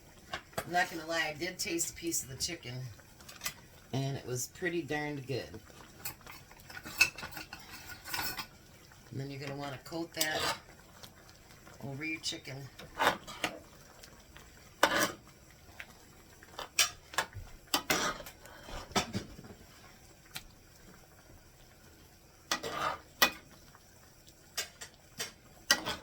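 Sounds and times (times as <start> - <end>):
utensil scraping a skillet: 5.9 - 8.6, 9.8 - 10.8, 12.5 - 13.7, 14.7 - 15.3, 16.4 - 20.0, 22.5 - 23.5, 24.5 - 26.0.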